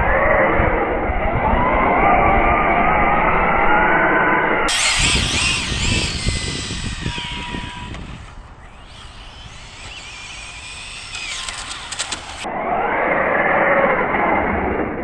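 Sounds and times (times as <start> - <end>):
electric motor whining: 4.7 - 12.5.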